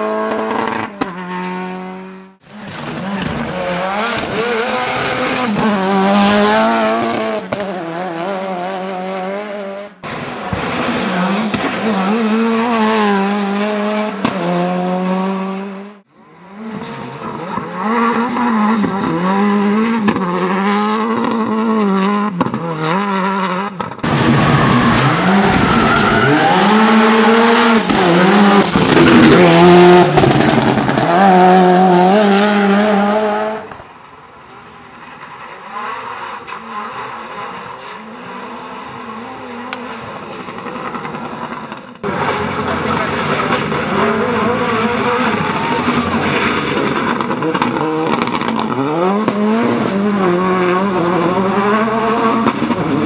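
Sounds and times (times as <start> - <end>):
rally car engine revving: 0.0 - 53.0.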